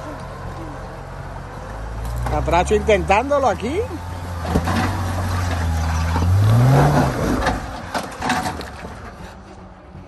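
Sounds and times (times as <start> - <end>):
engine revving under load: 1.6 - 8.0.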